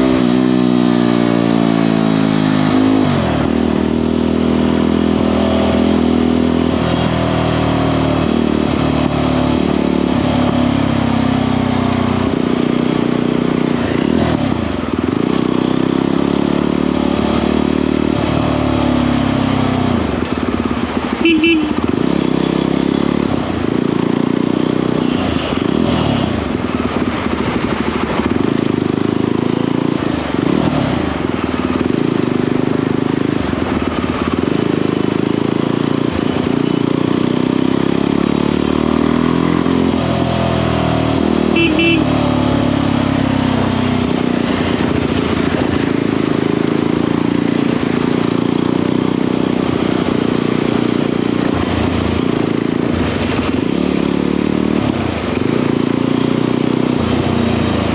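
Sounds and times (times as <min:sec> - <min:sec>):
motorcycle engine running: 0:00.0 - 0:57.9
short horn toot: 0:21.2 - 0:21.9, 0:41.5 - 0:42.2.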